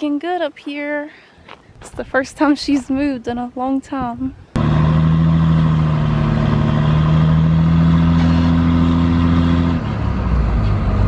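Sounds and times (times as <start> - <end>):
vehicle engine droning: 4.6 - 11.0.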